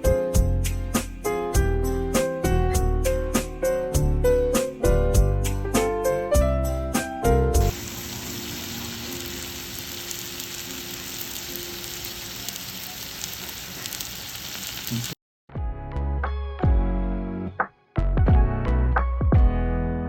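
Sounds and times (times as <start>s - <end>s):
background music: 0.0s - 12.3s, 15.6s - 20.0s
food sizzling in a pan: 7.6s - 15.2s.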